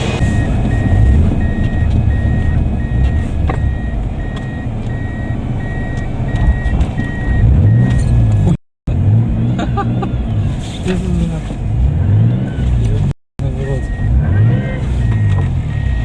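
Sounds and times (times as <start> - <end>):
vehicle warning beeper: 0.0 - 8.1, 13.4 - 16.0
engine rumbling: 0.0 - 16.0.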